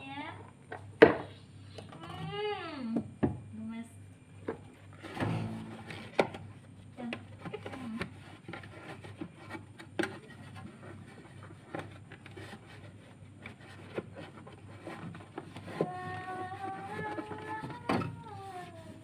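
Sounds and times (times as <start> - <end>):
steady low hum: 2.6 - 15.4
objects being handled: 4.4 - 19.0.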